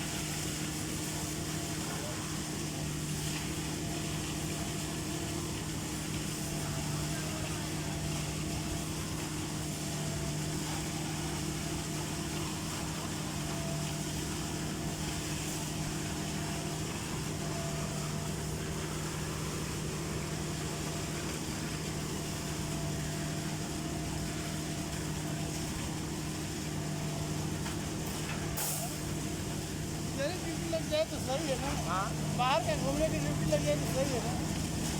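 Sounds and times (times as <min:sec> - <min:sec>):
engine droning: 0:05.4 - 0:34.9.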